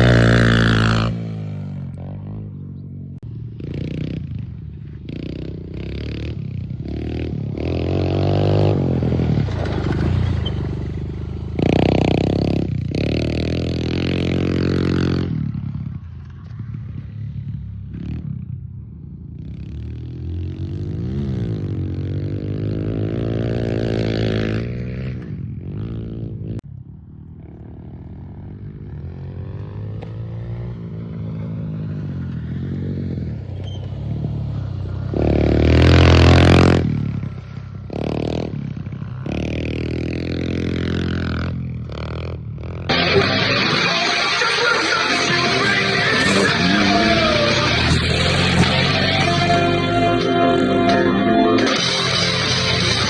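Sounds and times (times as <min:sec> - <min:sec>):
off-road vehicle engine revving: 0:00.0 - 0:02.9, 0:05.2 - 0:15.4, 0:34.8 - 0:53.0.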